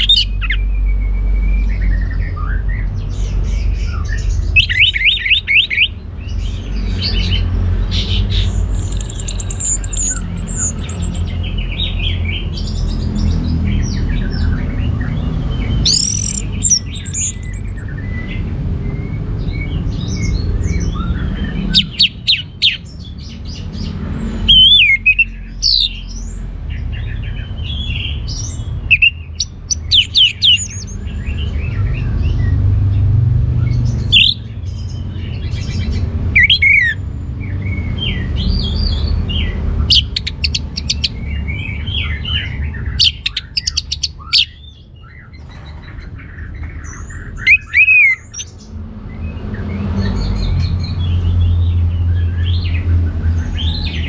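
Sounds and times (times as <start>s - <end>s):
bird singing whistles and trills: 8.0s - 12.7s, 13.9s - 23.0s, 27.7s - 32.5s, 37.6s - 45.9s.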